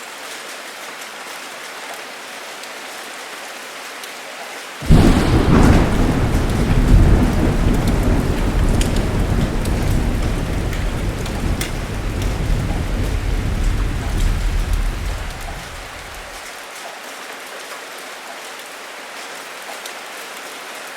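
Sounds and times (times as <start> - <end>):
heavy rain: 0.1 - 16.8
sharp drips: 4.8 - 16.4
thunder rumbling: 4.8 - 16.4.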